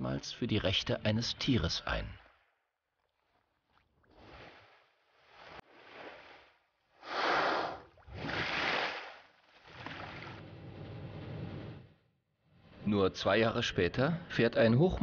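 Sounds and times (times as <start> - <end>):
water sloshing and splashing: 1.8 - 11.3.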